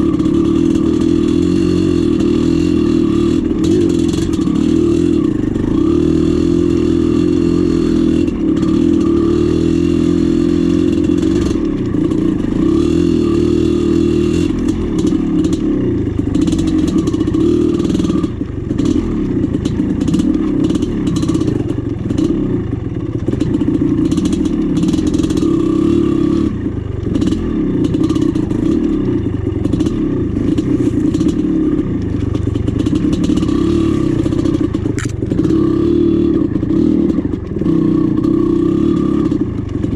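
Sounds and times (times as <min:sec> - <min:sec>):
two-stroke engine running hard: 0:00.0 - 0:39.9
clattering over rough ground: 0:29.5 - 0:35.6.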